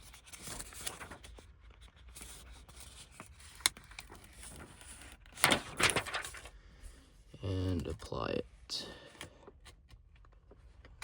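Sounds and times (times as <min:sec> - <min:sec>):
plastic film rustling: 0:03.8 - 0:06.6.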